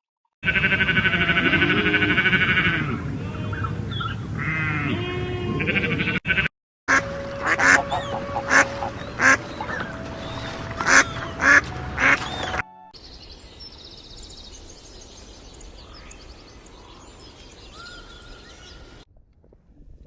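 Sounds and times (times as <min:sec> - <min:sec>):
animal calls: 0:00.4 - 0:12.7.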